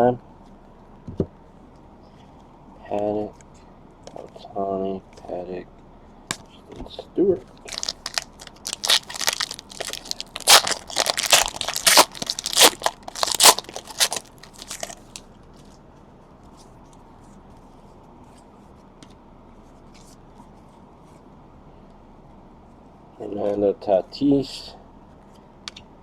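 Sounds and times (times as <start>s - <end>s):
card pack wrappers tearing and crinkling: 7.6s - 15.2s.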